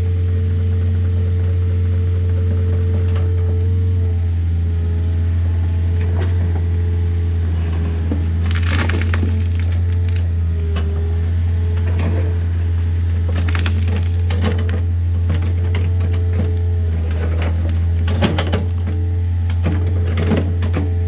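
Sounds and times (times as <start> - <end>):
diesel engine droning: 0.0 - 21.0
dirt and rock clattering: 8.4 - 10.4, 13.2 - 16.3, 17.0 - 20.5.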